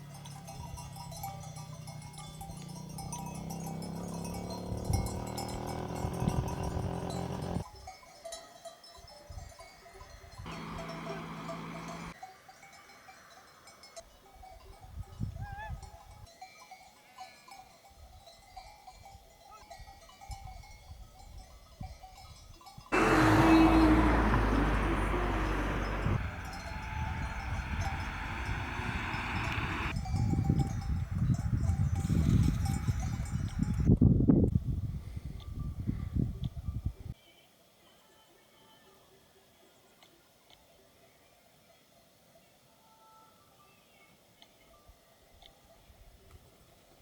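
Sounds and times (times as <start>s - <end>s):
sheep bells clanking: 0.0s - 33.9s.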